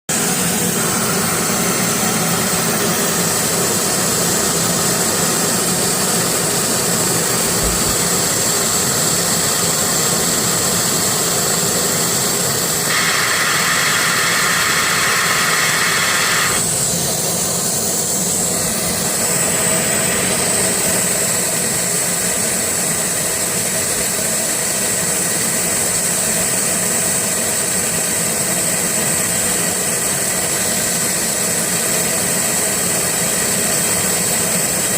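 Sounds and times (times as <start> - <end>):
laser machine whine: 0.1 - 34.9
bright hiss: 12.6 - 17.0.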